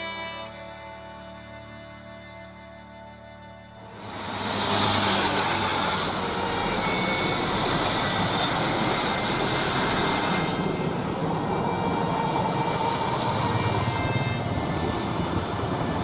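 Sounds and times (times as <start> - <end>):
jet engines roaring with whine: 3.8 - 16.0.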